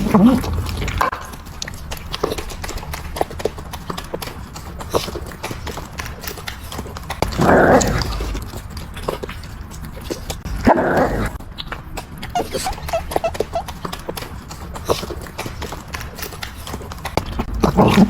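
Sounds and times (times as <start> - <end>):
dog chewing and licking: 0.0 - 18.0.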